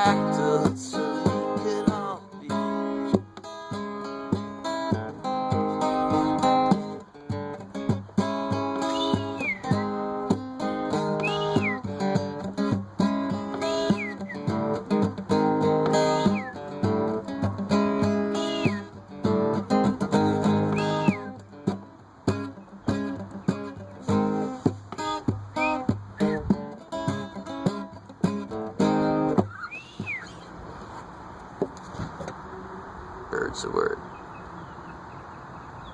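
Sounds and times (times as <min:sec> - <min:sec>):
acoustic guitar music: 0:00.0 - 0:34.0
high whistle-like glide: 0:08.8 - 0:10.0, 0:11.2 - 0:11.8, 0:13.8 - 0:14.5, 0:18.5 - 0:18.9, 0:20.7 - 0:21.3, 0:25.6 - 0:26.4, 0:29.5 - 0:30.5.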